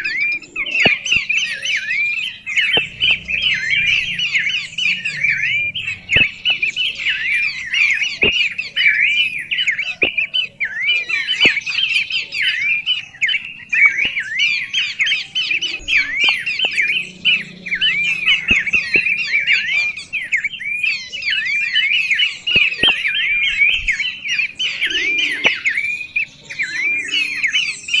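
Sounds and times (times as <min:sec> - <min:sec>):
birds chirping: 0:00.0 - 0:28.0
sharp clicks: 0:00.1 - 0:08.6, 0:10.0 - 0:10.7, 0:11.3 - 0:20.0, 0:22.5 - 0:24.0.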